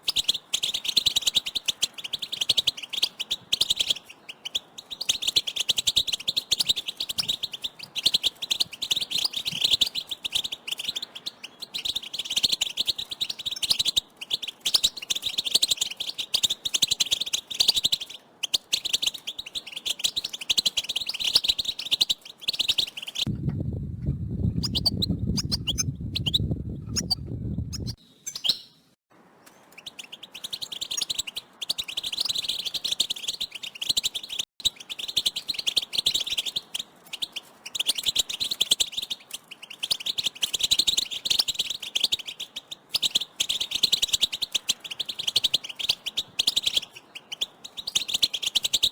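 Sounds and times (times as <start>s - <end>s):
flock of finches twittering: 0.0s - 23.3s, 24.6s - 26.4s, 27.0s - 28.6s, 29.7s - 48.9s
low rumbling noise: 23.3s - 28.0s.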